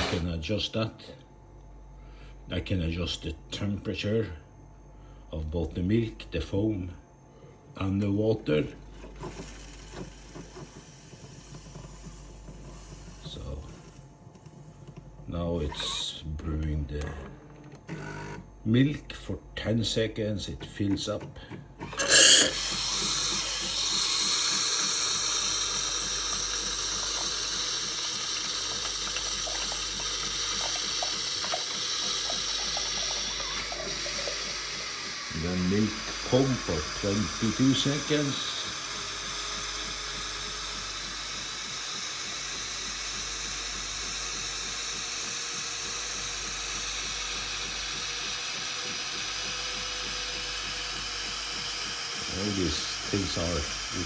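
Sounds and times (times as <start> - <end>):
milk dispensing hiss: 0.0 - 0.3, 21.9 - 54.0
pump pulsing: 0.0 - 0.3, 8.5 - 15.1, 21.4 - 54.0.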